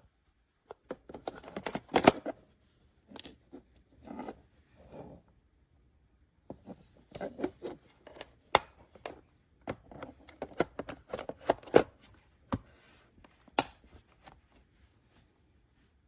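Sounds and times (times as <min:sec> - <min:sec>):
plastic parts clicking and tapping: 0:07.2 - 0:11.9.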